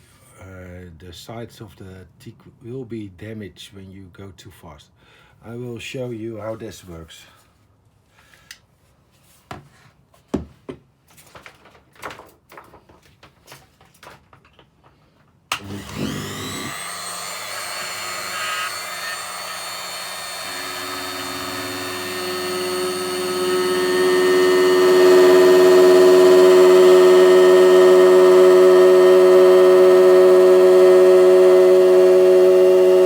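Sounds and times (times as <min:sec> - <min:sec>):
oscillating multi-tool buzzing: 0:15.6 - 0:33.0.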